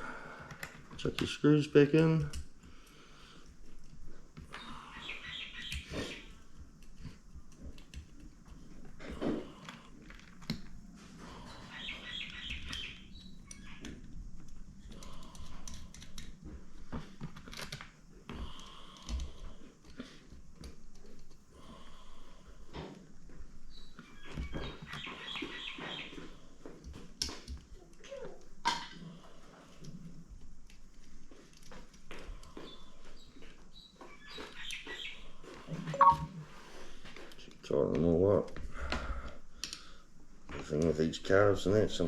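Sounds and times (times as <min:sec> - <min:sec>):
birds calling: 0:04.4 - 0:06.8, 0:11.1 - 0:14.0, 0:23.7 - 0:26.5, 0:32.5 - 0:36.2.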